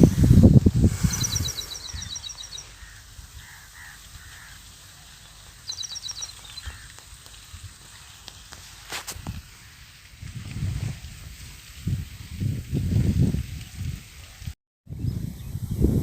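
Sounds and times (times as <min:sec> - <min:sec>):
wind gusts on microphone: 0:00.0 - 0:04.3, 0:08.9 - 0:16.0
small bird calling: 0:00.9 - 0:07.1.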